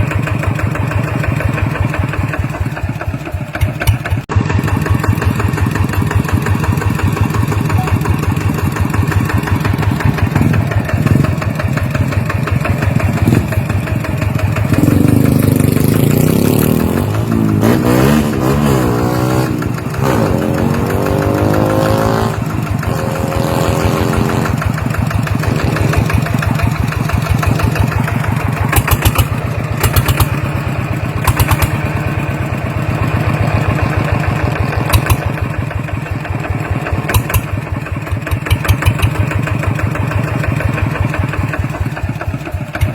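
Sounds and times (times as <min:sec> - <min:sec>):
tractor engine idling and revving: 0:00.0 - 0:42.9.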